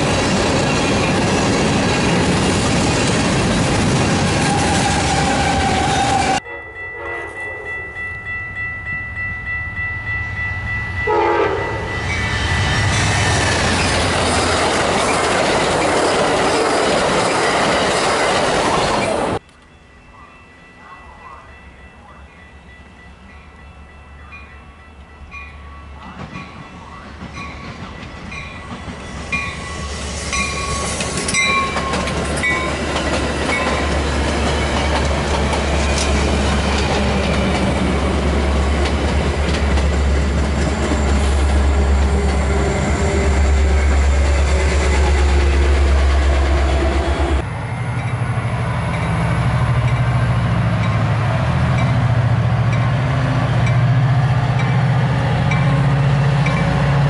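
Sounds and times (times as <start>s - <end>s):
diesel locomotive engine drone: 0.0s - 6.6s, 7.2s - 57.0s
wheels clicking over rail joints: 30.8s - 42.5s.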